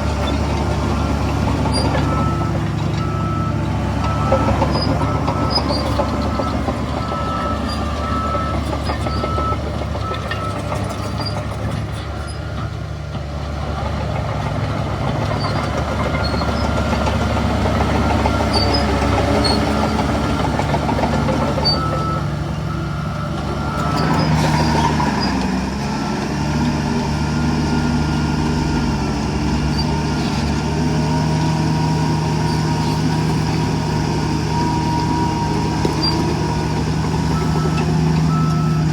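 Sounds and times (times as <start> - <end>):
heavy diesel engines running: 0.0 - 38.9
reversing alarm beeping: 1.6 - 10.6, 21.3 - 25.3, 34.4 - 38.9.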